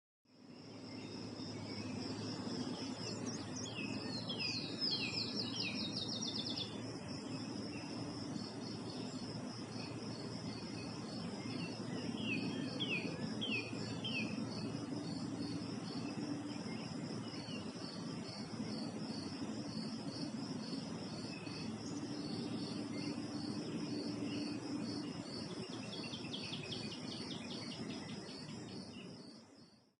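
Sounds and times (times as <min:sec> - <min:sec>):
insects chirping in a trill: 0:00.3 - 0:29.9
low background noise: 0:00.3 - 0:29.9.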